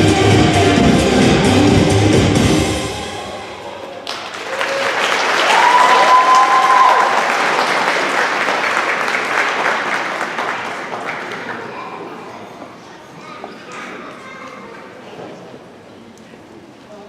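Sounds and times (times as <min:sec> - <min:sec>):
music: 0:00.0 - 0:03.8
audience applauding: 0:03.7 - 0:11.8
person cheering: 0:04.5 - 0:07.1.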